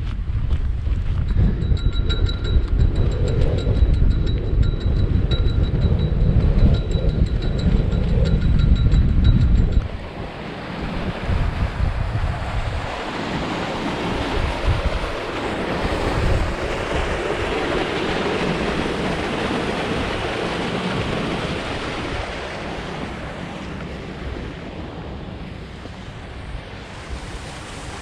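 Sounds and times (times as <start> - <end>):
low buffeting thumps: 0.0 - 10.0
gusty wind on microphone: 0.0 - 28.0.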